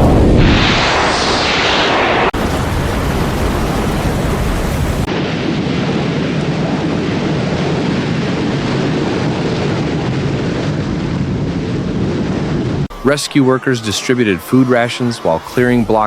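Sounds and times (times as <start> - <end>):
wind roaring: 0.0 - 12.9
heavy rain: 2.2 - 12.9.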